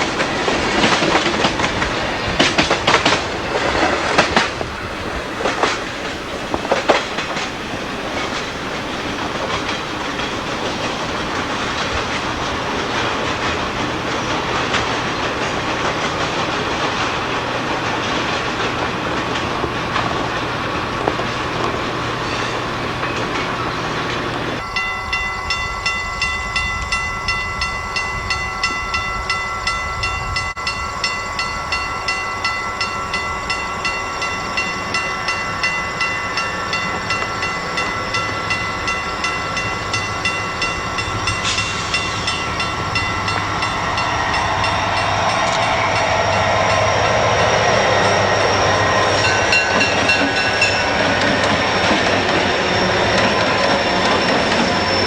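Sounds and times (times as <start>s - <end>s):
freight train clatter: 0.0s - 55.0s
ringing tone: 24.6s - 55.0s.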